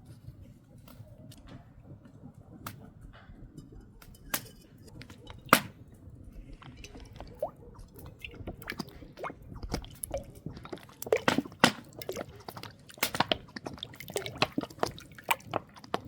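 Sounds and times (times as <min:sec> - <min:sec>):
wet chewing and smacking: 0:06.4 - 0:16.0.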